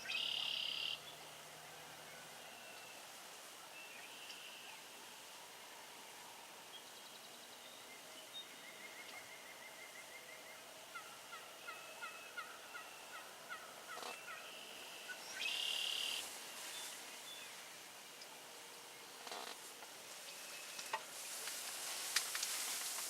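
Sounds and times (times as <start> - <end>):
songbirds singing: 0.0 - 5.0, 6.7 - 21.6
turkey gobbling: 10.9 - 14.4.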